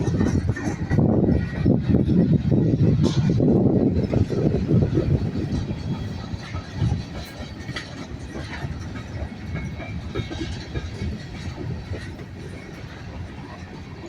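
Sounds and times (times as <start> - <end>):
freight train rumbling past: 0.0 - 14.0
train wheels clanking: 0.0 - 14.0.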